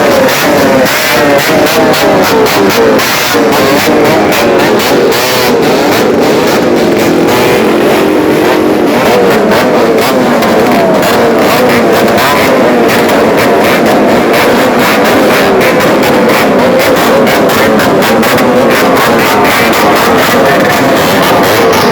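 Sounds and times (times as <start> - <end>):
many motorcycles revving: 0.0 - 21.9.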